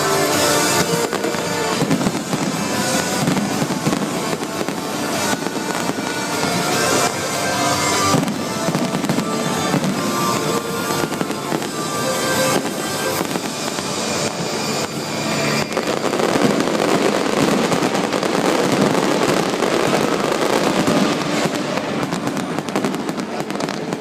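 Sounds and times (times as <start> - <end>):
fireworks crackling and bursting: 0.0 - 24.0
show music: 0.0 - 24.0.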